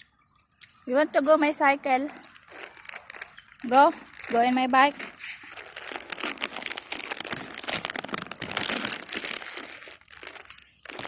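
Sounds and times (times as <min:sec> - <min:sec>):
chip bag crinkling: 0:01.9 - 0:11.0.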